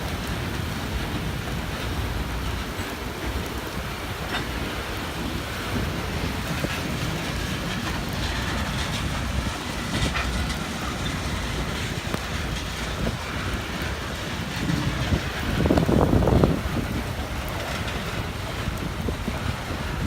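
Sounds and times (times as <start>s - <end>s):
freight train rumbling: 0.0s - 20.0s
wind noise on microphone: 0.0s - 20.0s.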